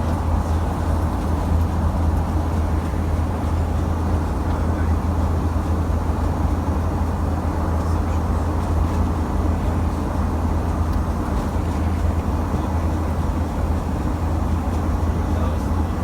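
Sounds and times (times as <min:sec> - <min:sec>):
airplane engines at climb power: 0:00.0 - 0:16.0.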